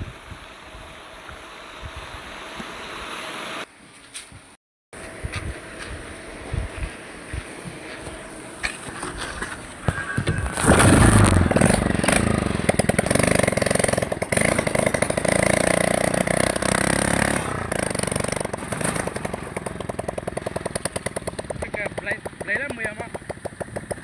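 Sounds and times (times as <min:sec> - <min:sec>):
small engine running: 0:00.0 - 0:03.7, 0:08.0 - 0:24.0
knocks: 0:19.7 - 0:24.0.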